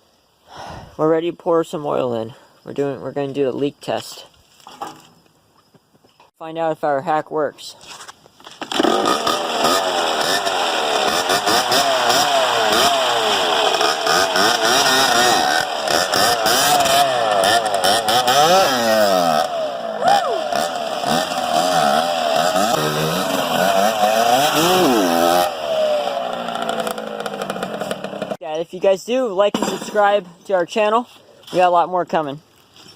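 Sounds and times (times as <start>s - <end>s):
dirt bike engine revving: 8.7s - 28.4s.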